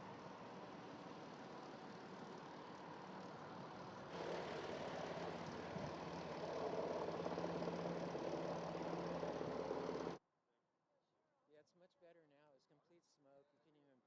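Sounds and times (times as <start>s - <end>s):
engine hum: 0.0s - 10.2s.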